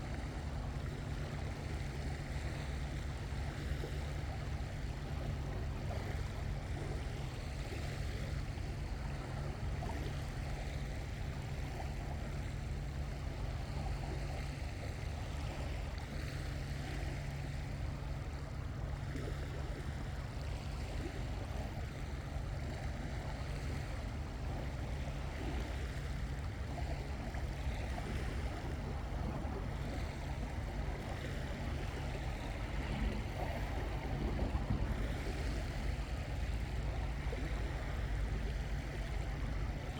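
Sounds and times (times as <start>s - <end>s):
waves washing on shore: 15.0s - 39.9s
wind rumbling on microphone: 23.0s - 39.9s.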